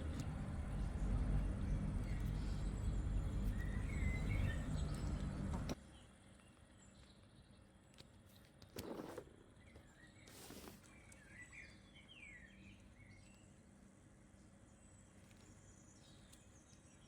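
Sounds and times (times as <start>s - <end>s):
faint bird chirps: 2.0s - 5.2s.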